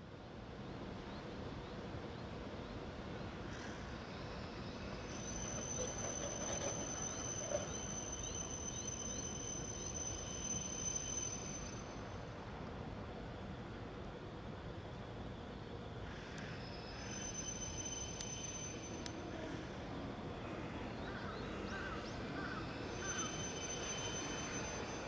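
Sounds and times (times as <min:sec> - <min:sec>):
train rolling with hiss: 0:03.0 - 0:13.0, 0:15.8 - 0:25.0.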